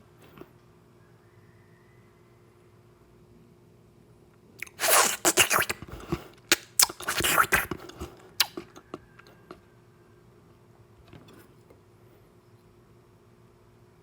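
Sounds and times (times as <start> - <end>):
mouth clicks: 4.6 - 8.9
biting and chewing: 4.6 - 9.6.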